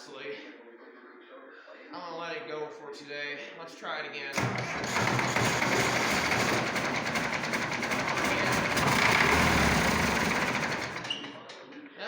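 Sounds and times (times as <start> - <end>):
starter cranking diesel engine: 4.4 - 11.6
diesel engine running: 4.5 - 11.1.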